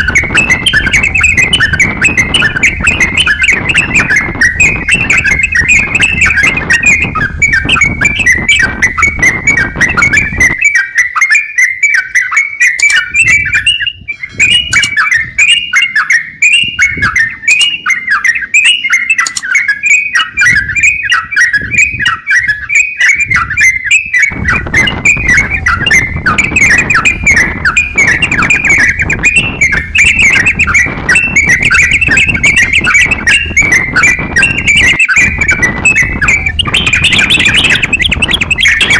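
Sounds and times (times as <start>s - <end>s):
low background rumble: 0.0s - 10.6s, 24.3s - 38.9s
bird chirping song: 0.0s - 38.9s.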